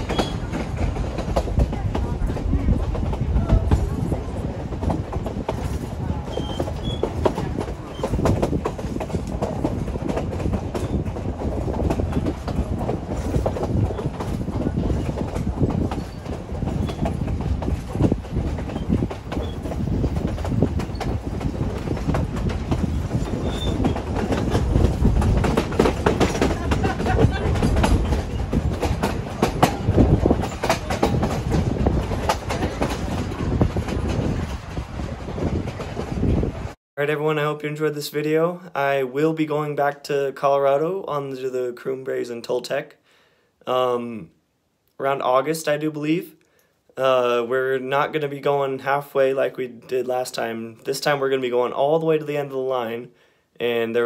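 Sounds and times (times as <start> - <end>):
train wheels clattering on rails: 0.0 - 36.8.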